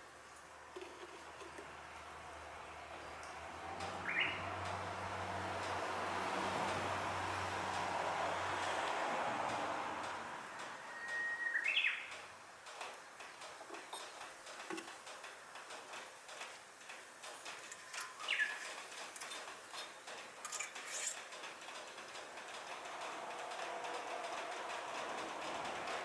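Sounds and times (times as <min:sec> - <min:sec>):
faint scattered clicks: 0:08.6 - 0:26.0
birds chirping: 0:10.9 - 0:12.3, 0:18.2 - 0:18.7.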